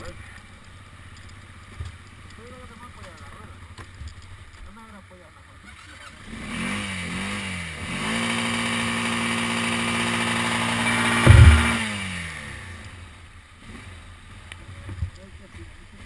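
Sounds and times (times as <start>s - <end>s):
quad engine revving: 5.6s - 13.0s
loud thump: 11.0s - 11.9s.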